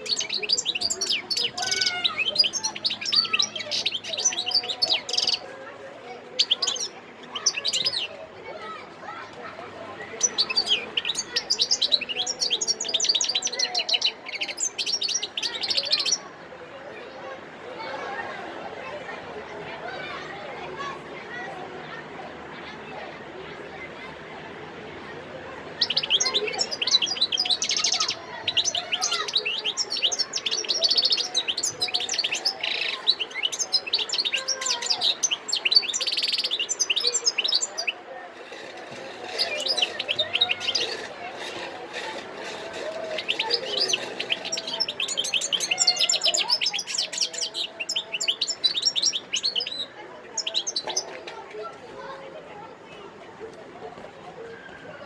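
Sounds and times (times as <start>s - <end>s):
goldfinch twittering song: 0.0s - 5.4s, 10.2s - 16.2s, 25.8s - 38.0s, 38.6s - 49.8s, 50.4s - 51.1s.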